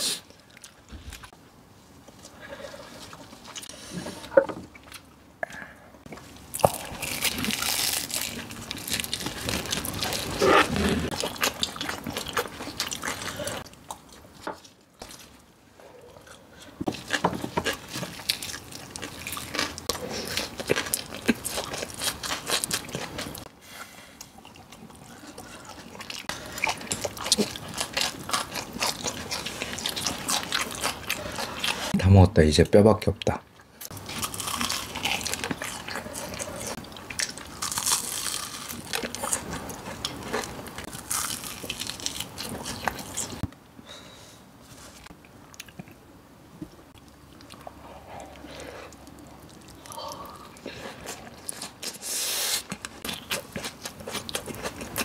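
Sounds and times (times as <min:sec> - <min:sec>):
crunching of crisp breading: 0:06.5 - 0:14.3, 0:16.9 - 0:23.4, 0:24.4 - 0:31.9, 0:33.9 - 0:43.4, 0:49.0 - 0:55.0
wet chewing: 0:24.2 - 0:32.0, 0:33.8 - 0:43.5, 0:46.9 - 0:55.0.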